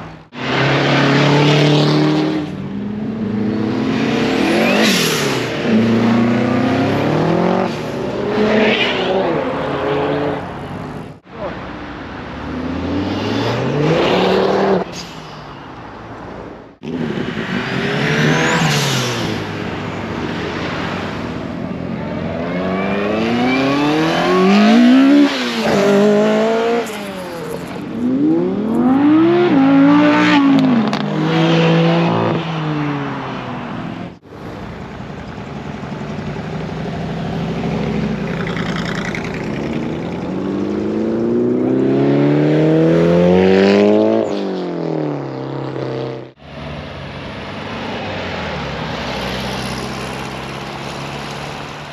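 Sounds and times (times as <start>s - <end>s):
car engines revving through gears: 0.2s - 11.2s, 12.4s - 14.9s, 16.7s - 21.2s, 22.3s - 34.2s, 37.4s - 46.4s.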